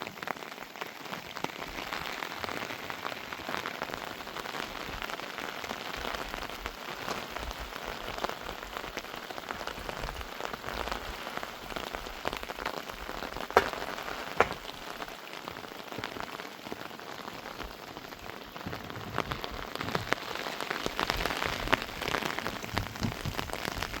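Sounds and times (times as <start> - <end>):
rain falling: 0.0 - 24.0
sharp taps: 13.6 - 14.7.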